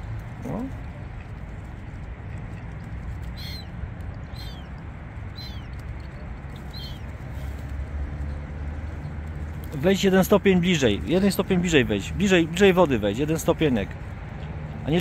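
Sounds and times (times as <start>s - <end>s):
bird chirping: 3.2s - 7.2s.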